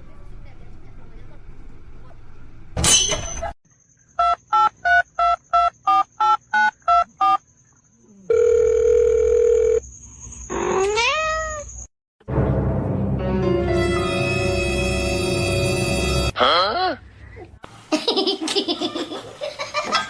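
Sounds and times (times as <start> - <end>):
cat meowing: 10.8 - 11.7.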